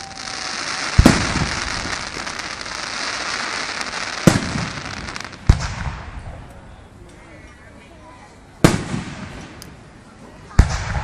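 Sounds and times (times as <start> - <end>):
firework crackling: 0.0 - 6.4, 8.6 - 9.8
loud firework bangs: 0.0 - 6.4, 8.6 - 9.6, 10.5 - 11.0.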